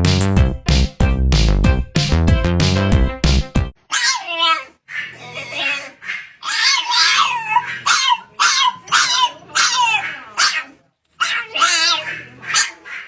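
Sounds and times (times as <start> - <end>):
dog whining and yipping: 3.9 - 12.8.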